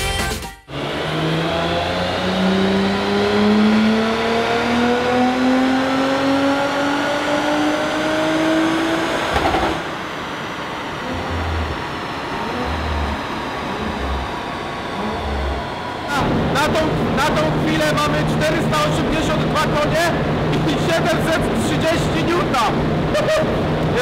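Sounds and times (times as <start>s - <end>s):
burst of noise on throttle close: 0.7s - 24.0s
car engine revving on dyno: 0.7s - 24.0s
low thumps: 9.3s - 10.0s, 11.0s - 17.2s.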